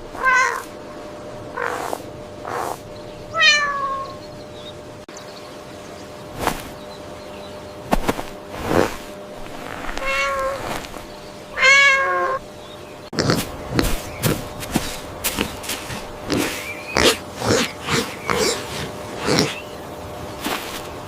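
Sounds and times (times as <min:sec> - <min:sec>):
cat meowing: 0:00.2 - 0:00.7, 0:03.3 - 0:04.2, 0:09.9 - 0:10.6, 0:11.6 - 0:12.4.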